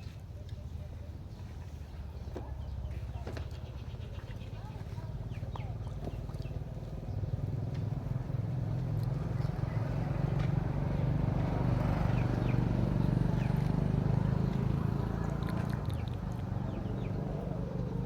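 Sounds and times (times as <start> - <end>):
engine humming: 5.1 - 18.0.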